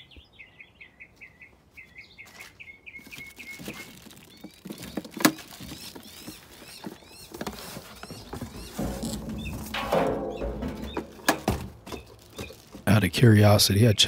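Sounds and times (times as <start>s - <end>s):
small bird chirping: 0.0s - 12.8s
plastic wrapping crinkling: 3.0s - 13.0s.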